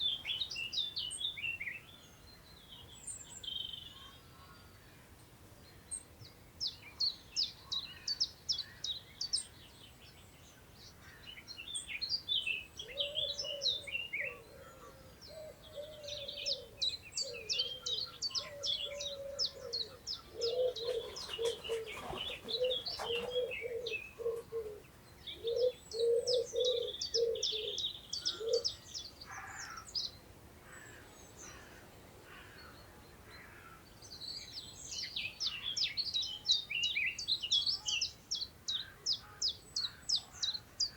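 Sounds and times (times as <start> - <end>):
songbirds chirping and trilling: 0.0 - 40.9
low repeated bird call: 12.6 - 40.9.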